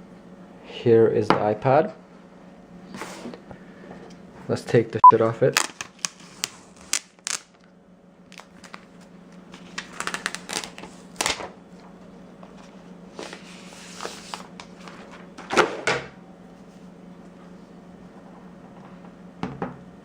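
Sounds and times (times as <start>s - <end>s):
plastic wrap clicking and crinkling: 5.5s - 7.7s, 8.3s - 11.5s
plastic wrap rustling: 8.3s - 11.5s.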